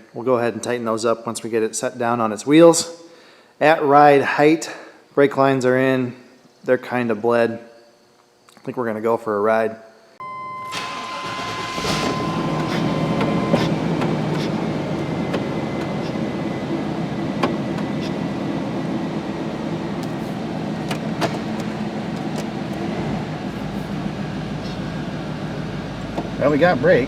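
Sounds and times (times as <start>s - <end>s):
high beep: 10.2s - 16.7s
truck engine running: 10.5s - 27.0s.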